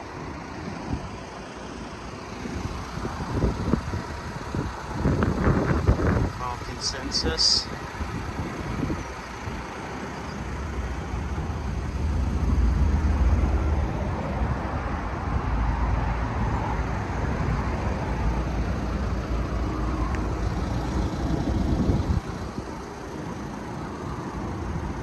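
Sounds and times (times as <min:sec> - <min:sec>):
road traffic rushing: 0:00.0 - 0:25.0.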